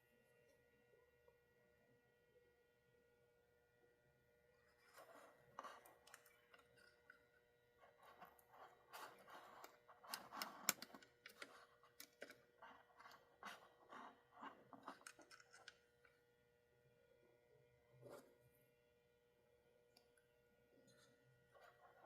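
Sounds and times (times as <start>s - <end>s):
faint electrical hum: 0.0s - 22.0s
small parts clicking and rustling: 4.7s - 16.2s.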